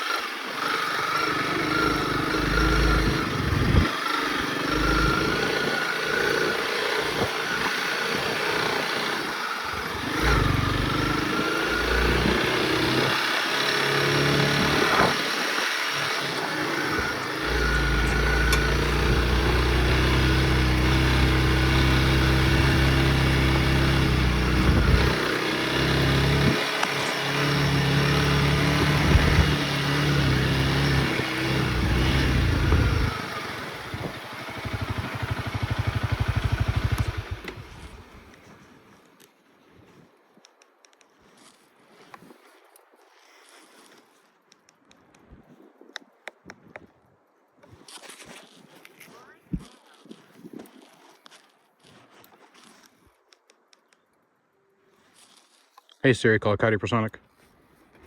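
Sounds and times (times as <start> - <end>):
motorcycle engine revving: 0.0 - 38.4.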